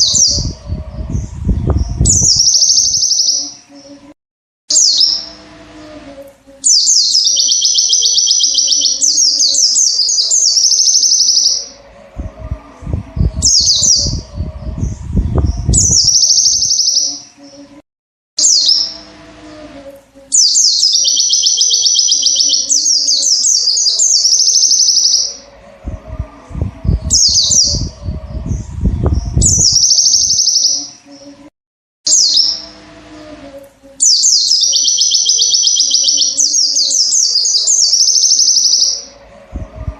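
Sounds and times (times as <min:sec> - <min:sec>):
low rumbling noise: 0:00.0 - 0:03.0, 0:11.2 - 0:16.7, 0:25.3 - 0:30.3, 0:39.0 - 0:39.9
bird twittering: 0:00.0 - 0:04.0, 0:06.6 - 0:12.5, 0:13.2 - 0:17.7, 0:20.3 - 0:25.5, 0:26.9 - 0:31.3, 0:34.0 - 0:39.2.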